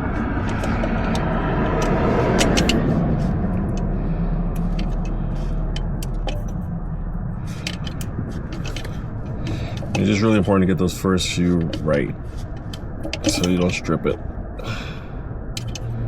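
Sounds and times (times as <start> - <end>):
car passing: 0.0 - 16.0
light clicks of tools handled: 11.5 - 13.8, 15.6 - 16.0.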